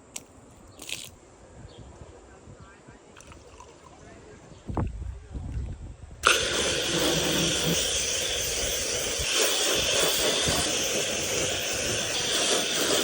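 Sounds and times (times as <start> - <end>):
hose nozzle spraying water: 6.2 - 13.0.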